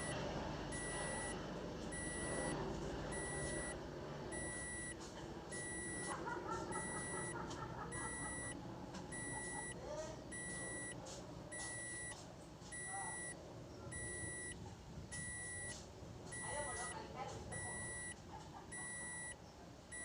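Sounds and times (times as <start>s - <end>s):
high-pitched electronic beeps: 0.8s - 1.4s, 2.0s - 2.5s, 3.2s - 3.8s, 4.4s - 5.0s, 5.6s - 6.1s, 6.8s - 7.3s, 8.0s - 8.6s, 9.2s - 9.7s, 10.3s - 10.9s, 11.6s - 12.2s, 14.0s - 14.5s, 15.1s - 15.8s, 16.4s - 16.9s, 17.6s - 18.1s, 18.8s - 19.3s.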